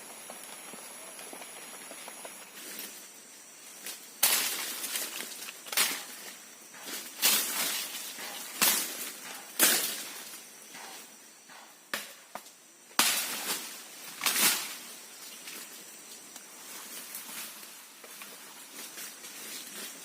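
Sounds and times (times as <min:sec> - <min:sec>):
crashing hits in wood and brush: 0:04.2 - 0:10.9, 0:13.0 - 0:14.8.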